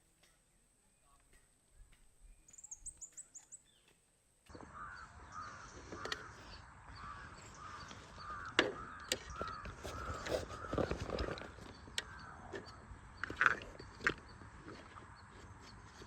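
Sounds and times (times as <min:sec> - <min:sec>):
repeated bird call: 0:00.9 - 0:16.0
very high bird chirps: 0:02.2 - 0:16.0
sharp clicks: 0:05.8 - 0:16.0.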